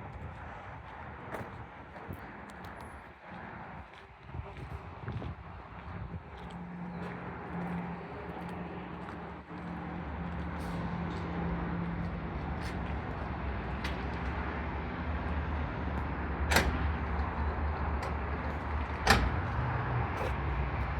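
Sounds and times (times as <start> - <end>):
engine humming: 5.6 - 20.9.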